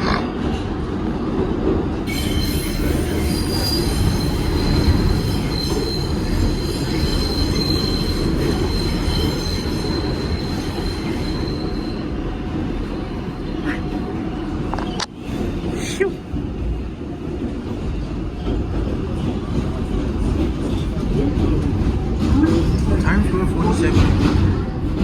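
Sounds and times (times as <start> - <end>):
high wheel squeal: 2.1 - 12.2.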